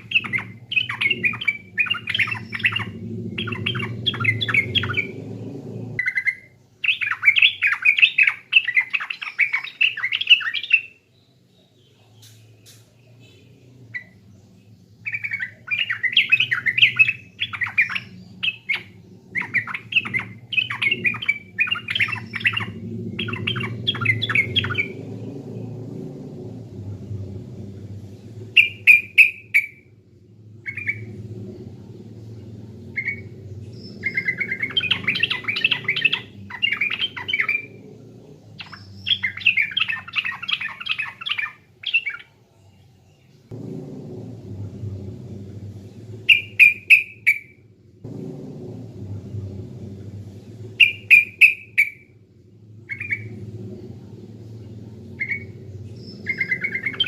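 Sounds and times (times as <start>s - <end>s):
bulbul chattering song: 0.0s - 10.9s, 46.0s - 47.6s, 48.5s - 52.2s
low steady hum: 0.0s - 57.0s.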